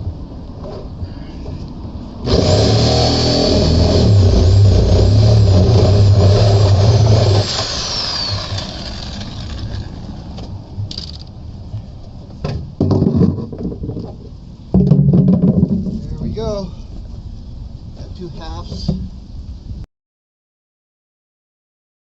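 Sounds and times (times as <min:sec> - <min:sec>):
power saw cutting plastic: 0:02.2 - 0:10.4.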